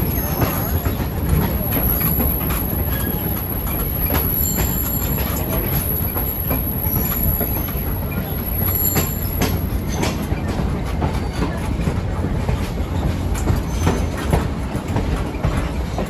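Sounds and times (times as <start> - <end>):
train rumbling on rails: 0.0 - 16.0
high-pitched wheel squeals: 8.2 - 10.1
clanks and knocks: 8.9 - 16.0.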